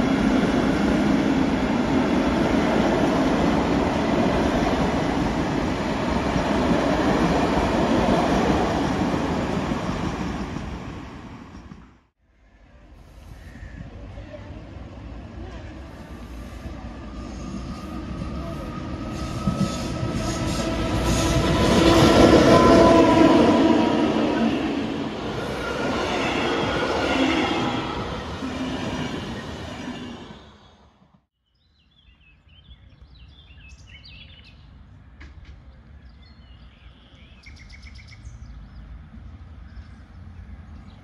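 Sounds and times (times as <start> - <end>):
electric train passing: 0.0 - 13.4, 14.0 - 31.2
bird chirps: 31.4 - 34.7, 35.9 - 38.9.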